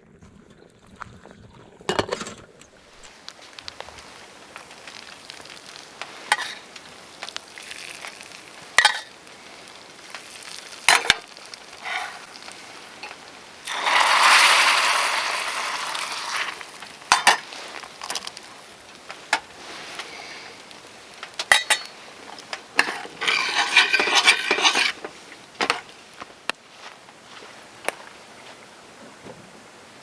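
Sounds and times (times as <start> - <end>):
loud sizzle: 2.9 - 26.3
metal utensils clinking on pots: 6.0 - 25.8.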